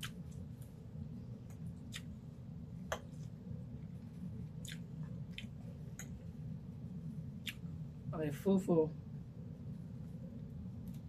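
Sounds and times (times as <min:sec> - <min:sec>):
chewing and wet mouth smacks: 0:00.0 - 0:00.7, 0:01.4 - 0:02.2, 0:04.5 - 0:06.2, 0:07.4 - 0:07.7
steady low hum: 0:00.0 - 0:11.0.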